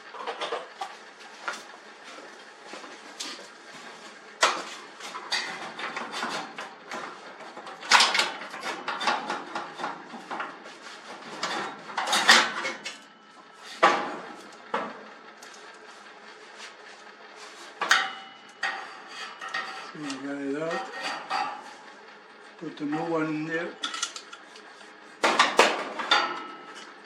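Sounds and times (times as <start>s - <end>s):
metal clanks and scrapes: 4.4s - 15.0s, 17.4s - 21.9s, 23.8s - 27.0s.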